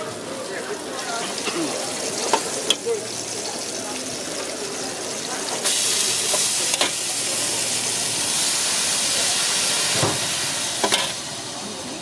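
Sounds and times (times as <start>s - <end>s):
vegetables sizzling on hot wok: 0.0s - 12.0s.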